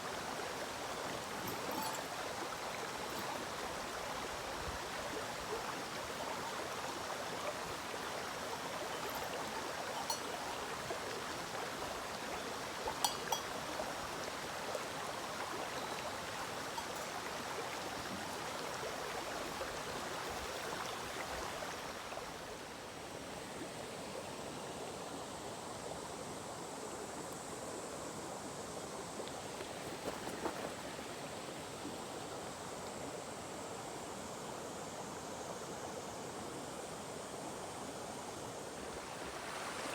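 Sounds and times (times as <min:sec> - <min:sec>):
stream flowing over rocks: 0:00.0 - 0:23.8, 0:29.1 - 0:33.6, 0:38.4 - 0:39.9.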